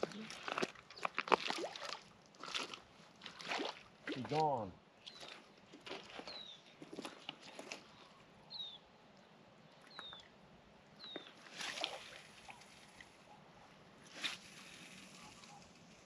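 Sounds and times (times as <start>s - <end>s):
high falling bird calls: 11.0s - 11.4s.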